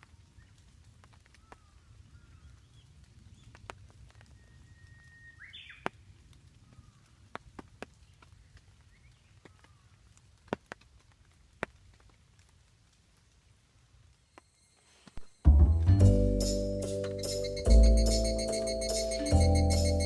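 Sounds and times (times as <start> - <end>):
birds whistling and twittering: 4.3 - 5.9, 16.8 - 20.0.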